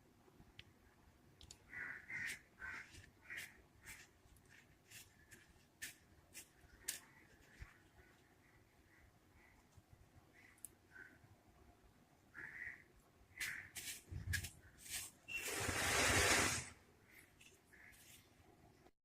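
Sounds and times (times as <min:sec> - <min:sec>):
faint crow cawing: 0:01.6 - 0:04.1, 0:06.7 - 0:11.3, 0:12.3 - 0:14.0, 0:17.0 - 0:18.3.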